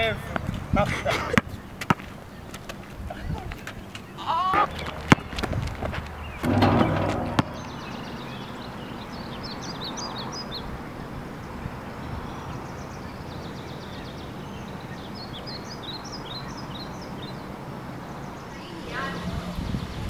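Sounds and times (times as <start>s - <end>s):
small birds chirping: 1.2s - 20.0s
sharp knock: 6.4s - 8.0s.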